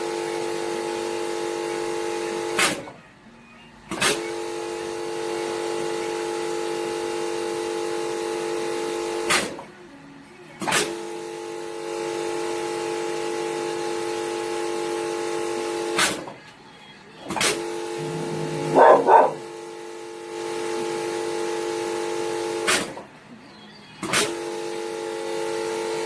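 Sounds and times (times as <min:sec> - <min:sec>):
filling machine humming: 0:17.2 - 0:22.5.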